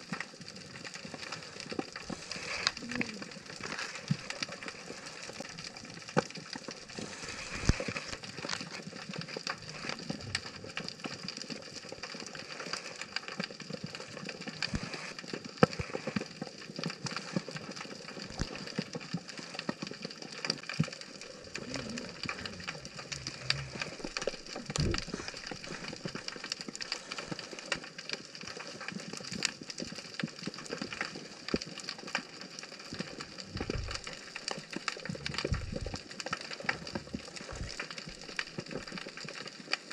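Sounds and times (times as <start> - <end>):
snapping shrimp clicks underwater: 0.0 - 39.9.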